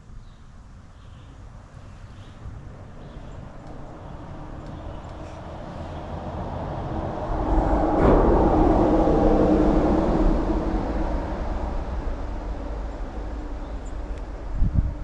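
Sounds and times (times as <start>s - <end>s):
vehicle passing by: 2.6s - 15.0s.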